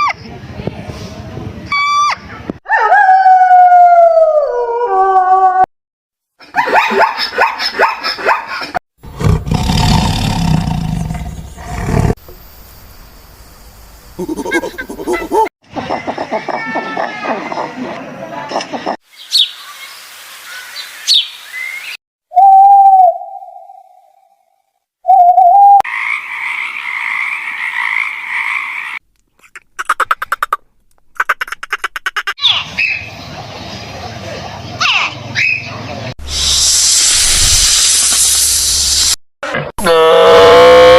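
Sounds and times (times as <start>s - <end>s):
deep animal roar: 9.0s - 12.2s
steady hiss: 12.2s - 14.3s, 36.2s - 39.2s
whistle tone: 22.3s - 23.8s, 25.0s - 25.8s
squeaky animal calls: 31.2s - 33.1s.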